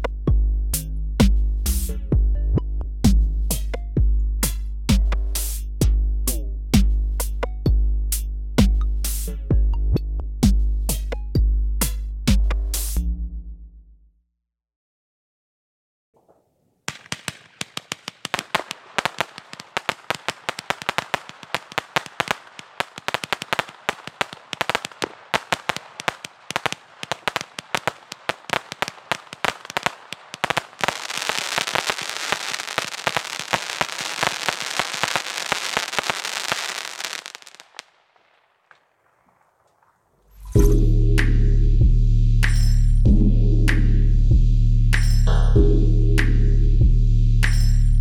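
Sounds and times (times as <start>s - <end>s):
fireworks bangs and pops: 16.2s - 40.6s
firework crackling hiss: 16.9s - 38.9s.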